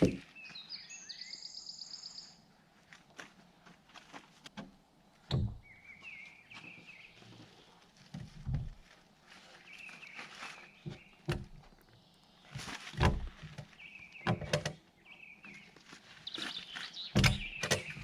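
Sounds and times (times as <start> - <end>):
knocks and thuds: 5.3 - 5.6, 8.2 - 8.8, 11.3 - 11.7, 13.0 - 13.6, 17.2 - 18.0.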